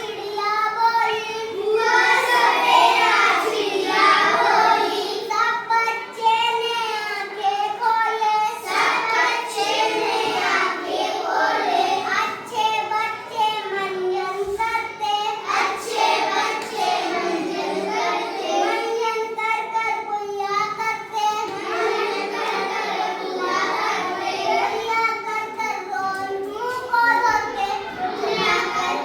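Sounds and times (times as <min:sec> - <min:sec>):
children chanting a rhyme: 0:00.0 - 0:29.0.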